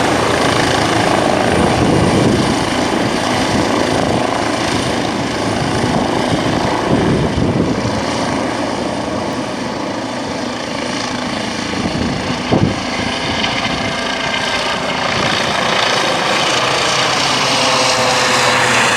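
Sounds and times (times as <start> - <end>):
helicopter running: 0.0 - 18.9.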